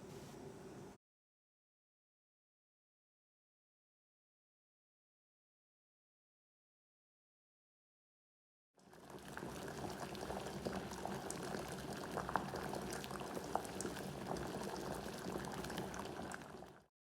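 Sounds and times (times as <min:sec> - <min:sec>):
eggs deep-frying in hot oil: 0:08.8 - 0:16.9.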